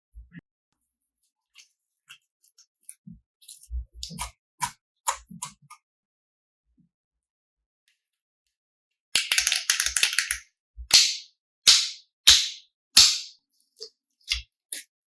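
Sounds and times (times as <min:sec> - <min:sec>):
slime clicking and tapping: 0:09.2 - 0:13.3.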